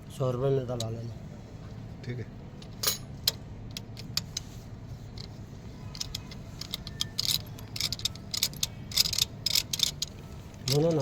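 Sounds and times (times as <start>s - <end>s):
metal tools clinking: 2.8s - 3.2s.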